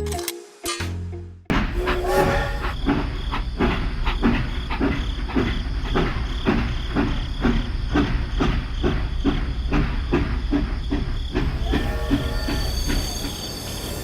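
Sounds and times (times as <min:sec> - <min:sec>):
machine rumble: 0:01.5 - 0:12.6.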